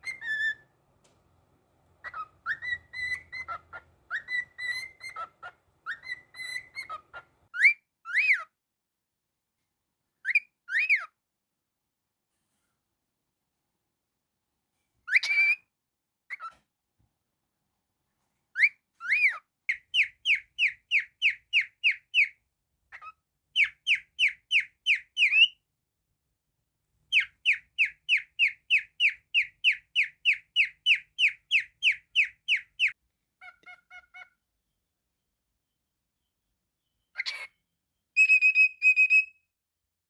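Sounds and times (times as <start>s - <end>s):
cockatiel whistling: 0.0s - 0.6s, 2.0s - 8.5s, 18.6s - 22.4s, 23.0s - 25.6s, 27.1s - 33.0s, 38.2s - 39.4s.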